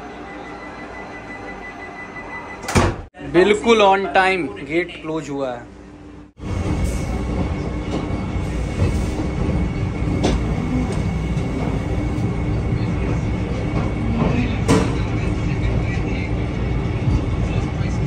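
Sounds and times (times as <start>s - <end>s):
electric train rumble and hum: 5.6s - 18.0s.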